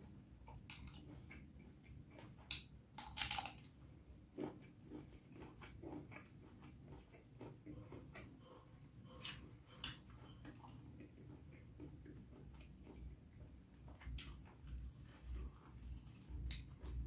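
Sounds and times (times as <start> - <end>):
soft chewing: 0.0 - 17.0.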